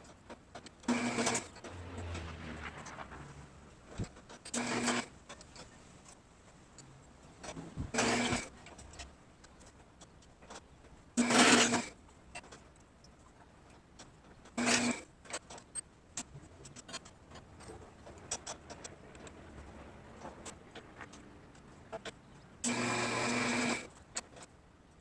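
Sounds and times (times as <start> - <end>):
small power tool running: 22.6 - 23.9.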